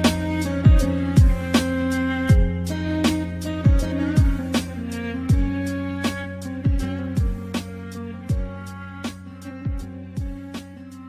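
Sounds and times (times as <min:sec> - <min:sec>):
deep bass kicks sliding down: 0:00.0 - 0:01.6, 0:02.3 - 0:04.6, 0:05.3 - 0:05.7, 0:09.7 - 0:10.5
steady melody: 0:00.0 - 0:11.0.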